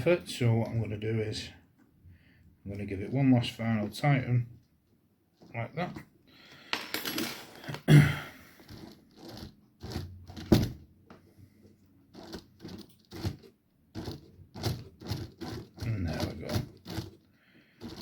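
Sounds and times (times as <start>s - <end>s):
small parts clicking and knocking: 6.5s - 7.9s, 8.6s - 10.8s, 12.1s - 18.0s.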